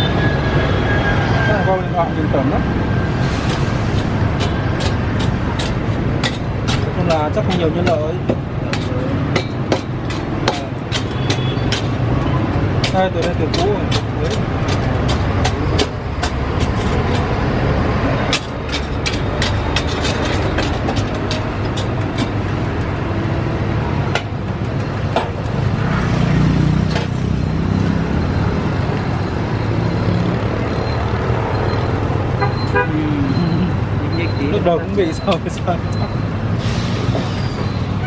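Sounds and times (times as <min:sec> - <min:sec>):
traffic engines running: 0:00.0 - 0:38.0
car horn toots: 0:32.4 - 0:33.3.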